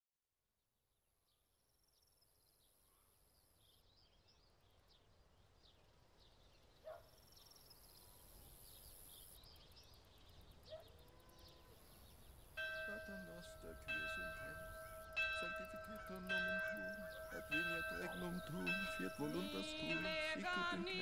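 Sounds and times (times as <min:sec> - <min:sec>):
birds chirping: 0:06.2 - 0:21.0
loud bird calls: 0:10.6 - 0:21.0.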